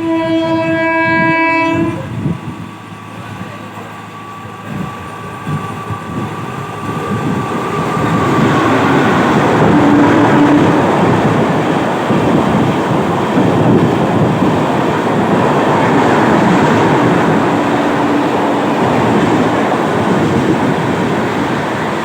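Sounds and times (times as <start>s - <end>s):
train horn: 0.0s - 2.1s, 9.6s - 11.2s
train rumbling: 0.0s - 22.0s.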